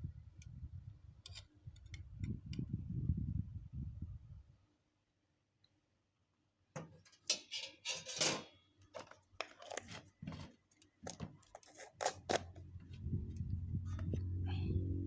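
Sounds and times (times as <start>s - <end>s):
objects clattering when handled: 6.8s - 12.7s.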